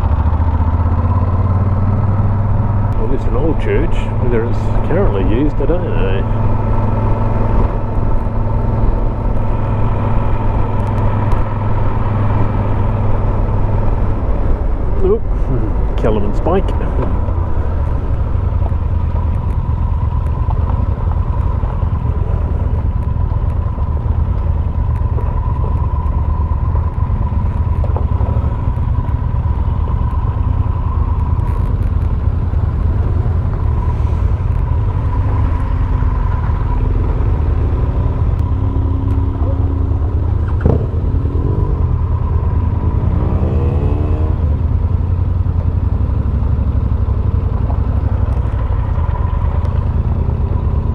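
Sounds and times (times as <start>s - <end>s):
motorcycle engine: 0.0s - 50.9s
wind rumble: 0.0s - 50.9s.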